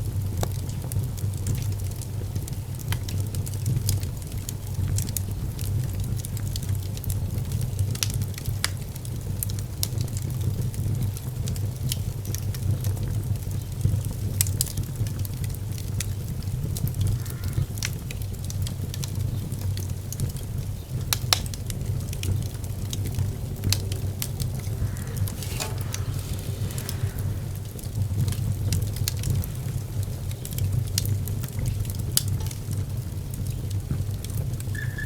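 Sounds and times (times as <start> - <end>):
fire crackling: 11.1 - 35.0
low steady rumble: 22.5 - 31.6.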